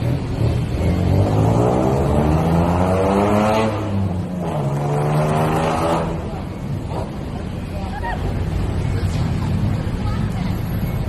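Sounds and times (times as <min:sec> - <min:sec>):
vehicle engine accelerating: 0:00.0 - 0:07.6.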